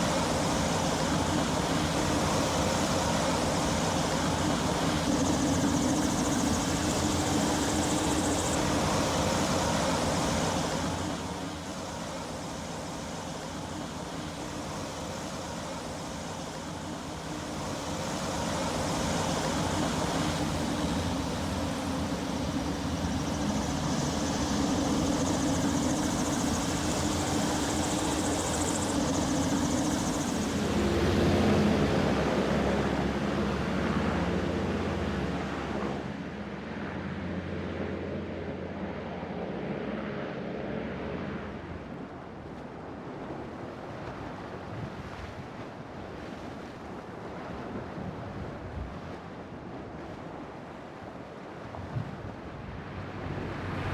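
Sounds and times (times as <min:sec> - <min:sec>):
engine droning: 0:13.4 - 0:42.1, 0:52.6 - 0:53.9.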